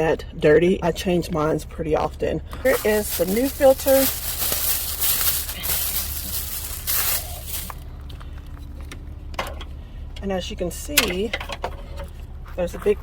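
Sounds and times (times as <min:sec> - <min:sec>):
packaging rustling and crackling: 0:02.6 - 0:07.8.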